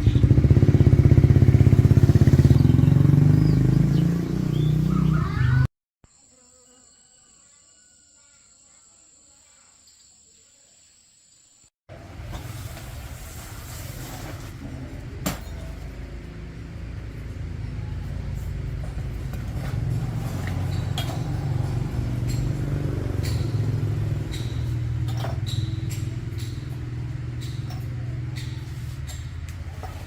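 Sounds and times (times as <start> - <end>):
small engine rumbling: 0.0 - 5.7, 11.9 - 30.0.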